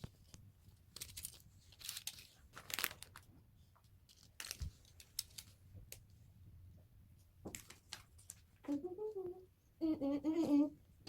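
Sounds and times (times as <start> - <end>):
plastic packaging crinkling: 0.0 - 3.4, 4.0 - 5.6
plastic pieces clicking: 4.1 - 5.6.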